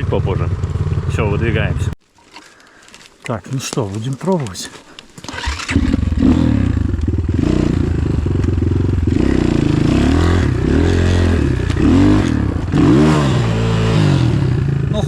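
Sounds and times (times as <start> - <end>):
motorcycle engine revving: 0.0 - 1.9, 5.2 - 15.0
motorcycle scraping on logs: 2.1 - 14.9.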